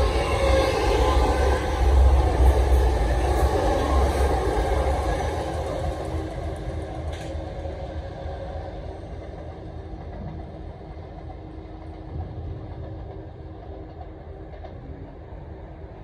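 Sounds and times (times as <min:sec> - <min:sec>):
wheel-on-rail noise: 0:00.0 - 0:16.0.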